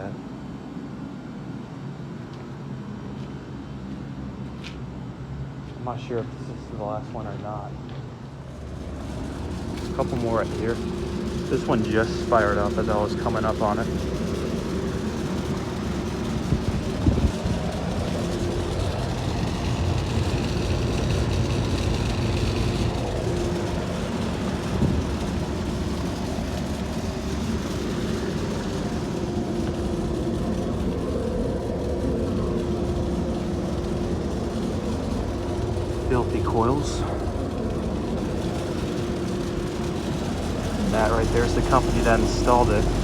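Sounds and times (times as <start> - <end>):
air conditioner compressor hum: 0.0 - 43.0.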